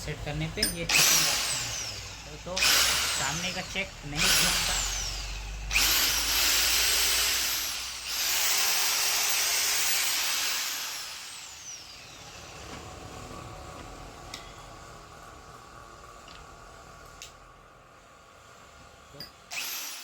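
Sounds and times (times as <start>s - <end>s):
rotary hammer running: 0.6s - 12.2s
motor whine coasting down: 0.8s - 8.2s.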